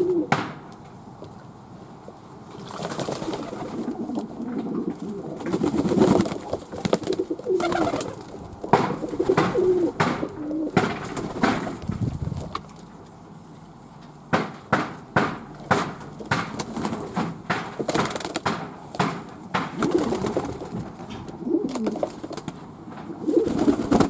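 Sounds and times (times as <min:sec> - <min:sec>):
pigeons cooing: 0:00.0 - 0:00.7, 0:02.6 - 0:11.7, 0:19.8 - 0:24.0
sharp knocks: 0:00.3 - 0:00.7, 0:08.7 - 0:12.0, 0:14.3 - 0:20.3.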